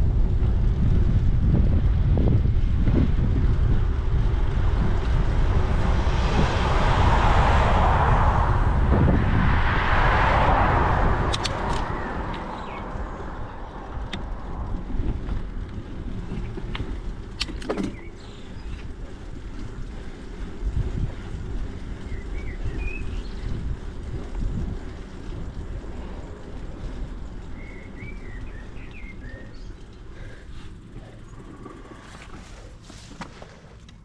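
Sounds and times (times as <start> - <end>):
wind buffeting microphone: 0.0 - 33.6
vehicles passing: 0.0 - 34.0
light clicks and rattles: 11.3 - 34.0.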